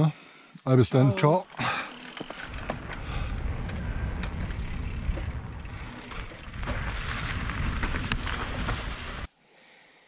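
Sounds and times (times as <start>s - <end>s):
wind rumble on microphone: 2.5s - 9.3s.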